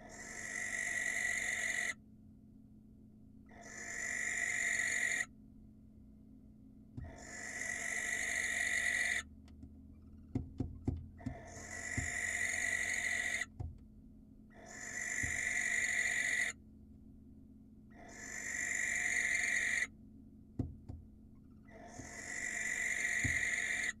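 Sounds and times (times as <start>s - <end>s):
barn owl hissing screech: 0.0s - 2.0s, 3.5s - 5.3s, 7.1s - 9.3s, 11.3s - 13.5s, 14.6s - 16.6s, 18.0s - 19.9s, 21.7s - 24.0s.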